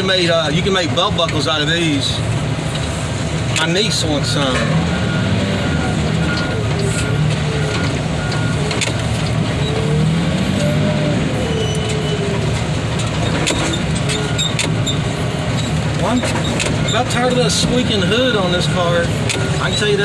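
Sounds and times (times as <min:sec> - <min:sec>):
heavy machinery engine running: 0:00.0 - 0:20.0
metal squeaks from car hood: 0:11.4 - 0:17.5.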